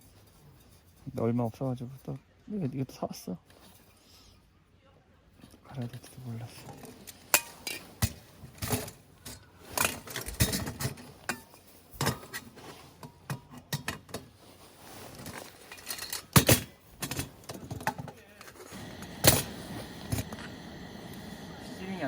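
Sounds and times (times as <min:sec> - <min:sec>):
metal cookware clinking: 0:06.6 - 0:14.4, 0:15.1 - 0:20.5.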